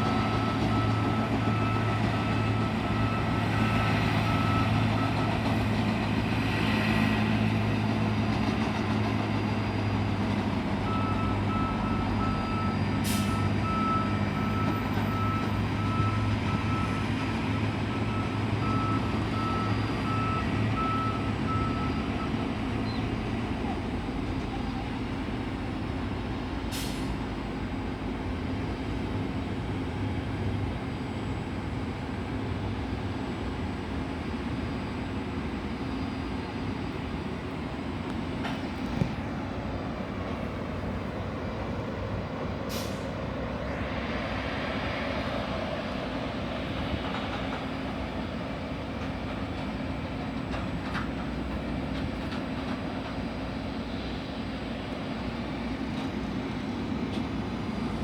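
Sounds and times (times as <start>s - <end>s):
reversing beeper beeping: 0.0s - 5.5s, 10.8s - 22.6s
engine drone: 0.0s - 58.0s.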